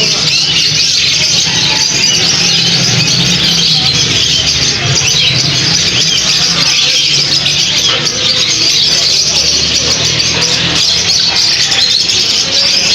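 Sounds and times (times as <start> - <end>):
small birds chirping and chattering: 0.0 - 12.9.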